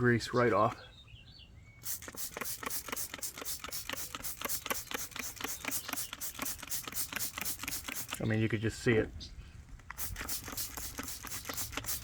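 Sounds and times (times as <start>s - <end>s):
rapid scratchy scrubbing strokes: 1.9s - 8.2s, 10.0s - 12.0s.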